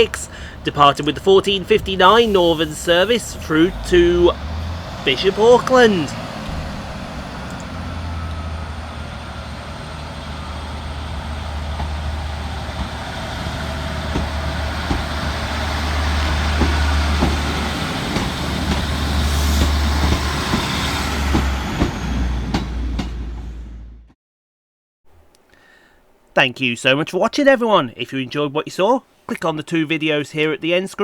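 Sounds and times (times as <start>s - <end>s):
diesel train engines droning: 0.0s - 24.2s.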